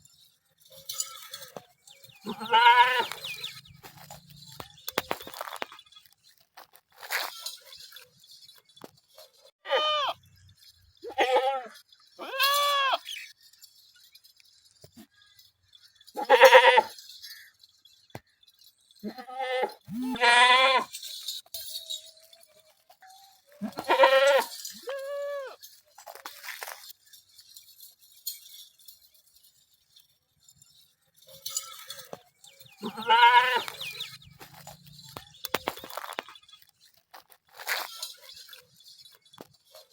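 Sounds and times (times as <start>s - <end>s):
goats bleating: 2.2s - 3.5s, 9.6s - 10.2s, 11.0s - 13.1s, 16.2s - 16.9s, 19.0s - 20.9s, 23.6s - 25.6s, 32.8s - 34.2s.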